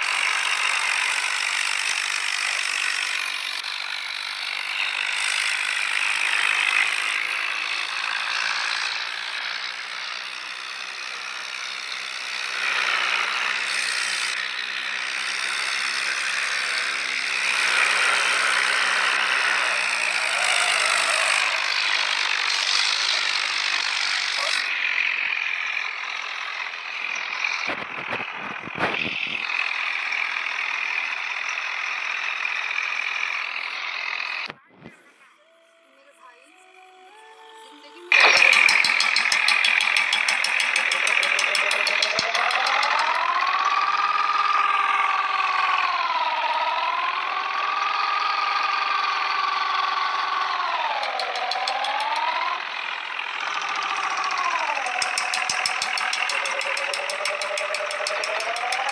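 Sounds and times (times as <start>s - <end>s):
tractor engine running hard: 0.0s - 35.1s, 38.1s - 58.9s
rattling: 38.1s - 58.9s.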